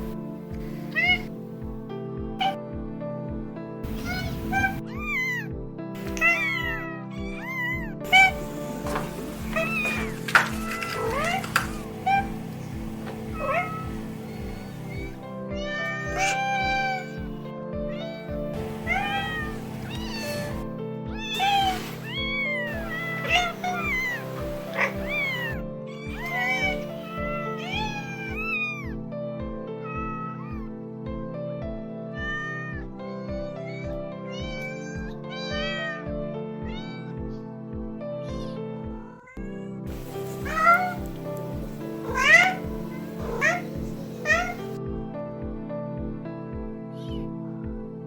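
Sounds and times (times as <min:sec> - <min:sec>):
background music with steady beat: 0:00.0 - 0:48.0
cats meowing: 0:00.7 - 0:01.3, 0:03.9 - 0:29.0, 0:29.8 - 0:30.7, 0:32.1 - 0:32.9, 0:33.6 - 0:36.0, 0:36.7 - 0:37.2, 0:39.1 - 0:44.8.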